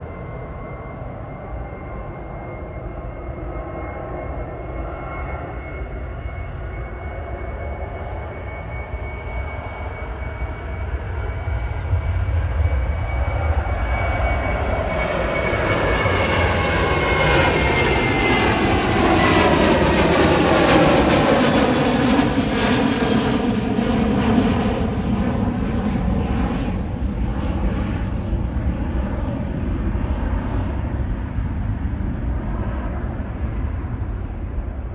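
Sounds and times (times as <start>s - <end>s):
jet engines passing at takeoff: 0.0s - 34.9s.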